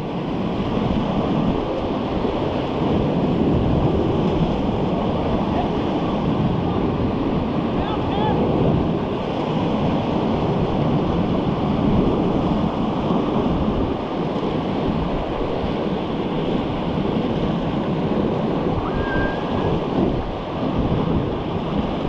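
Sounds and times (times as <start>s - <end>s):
whitewater river roaring: 0.0s - 22.0s.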